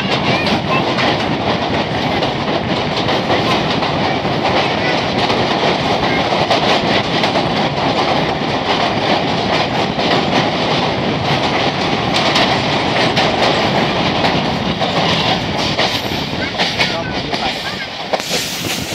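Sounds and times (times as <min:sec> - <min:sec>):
clickety-clack of rail joints: 0:00.0 - 0:18.9
train wheels on rails: 0:00.0 - 0:18.9.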